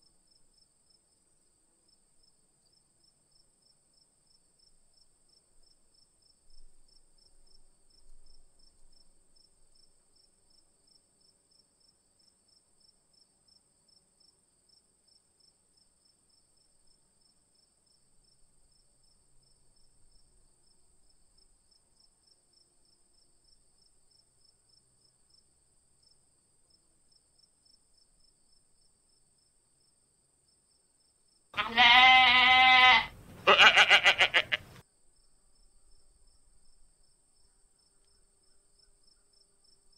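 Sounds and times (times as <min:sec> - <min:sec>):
faint insect chirping: 0:00.0 - 0:39.9
goat bleating: 0:31.6 - 0:34.8.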